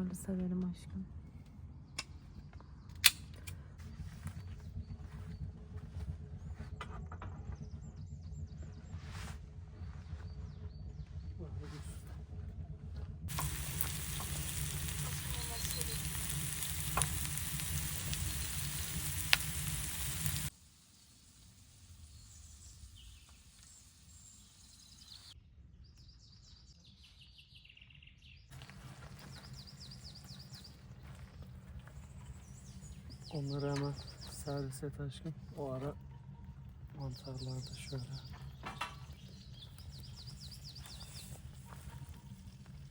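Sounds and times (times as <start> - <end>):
food sizzling in a pan: 13.3 - 25.4
birds chirping: 13.3 - 27.7, 28.4 - 42.9.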